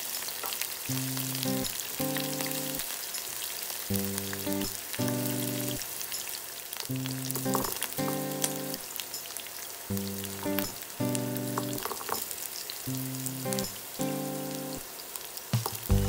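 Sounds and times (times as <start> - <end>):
vegetables sizzling in oil: 0.0 - 16.0
background music: 15.7 - 16.0.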